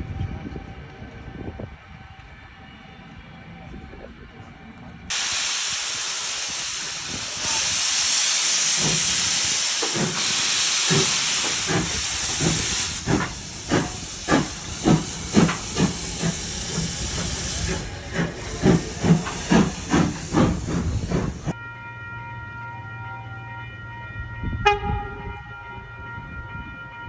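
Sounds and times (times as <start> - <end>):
steam hissing: 5.1 - 21.6
steam locomotive exhaust beating: 5.1 - 21.6.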